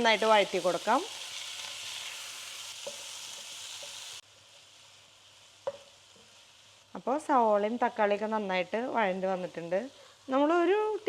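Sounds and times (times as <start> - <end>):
faint hiss: 0.0 - 11.0
onion frying in a pan: 0.0 - 11.0.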